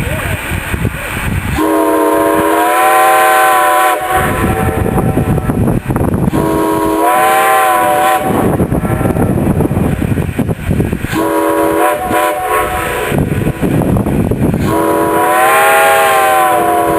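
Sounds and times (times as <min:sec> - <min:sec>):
running train rumble: 0:00.0 - 0:16.9
steam locomotive chime whistle: 0:01.6 - 0:04.8, 0:06.3 - 0:08.5, 0:14.6 - 0:16.9.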